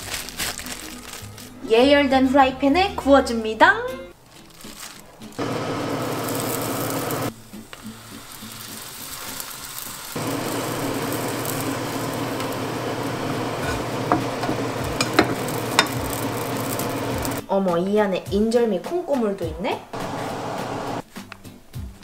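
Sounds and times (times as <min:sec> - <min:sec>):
dough sizzling in frying pan: 0:04.4 - 0:17.4.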